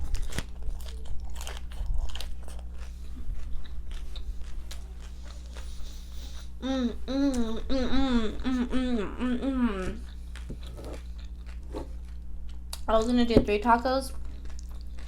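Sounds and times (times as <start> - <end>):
person crunching fried food: 0.0 - 6.6, 14.2 - 15.0.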